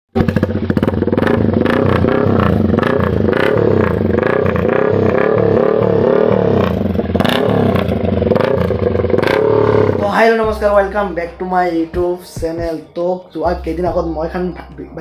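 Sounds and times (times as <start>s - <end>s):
motorcycle engine revving: 0.1s - 11.8s.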